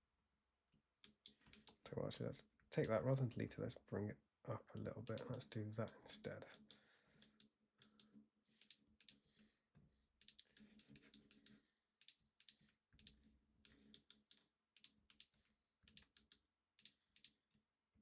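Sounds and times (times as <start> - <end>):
mouse and keyboard clicks: 1.0 - 1.8, 5.0 - 9.4, 10.2 - 17.4.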